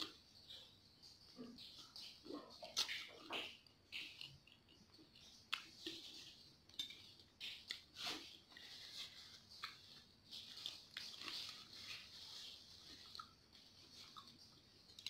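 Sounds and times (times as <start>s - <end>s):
chewing and lip smacks: 0.0s - 15.0s
paper tissue rustling: 7.8s - 15.0s.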